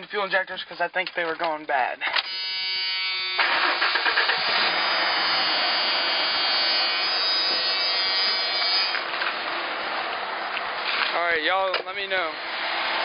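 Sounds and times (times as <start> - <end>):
engine running with mechanical clatter: 3.2 - 11.1.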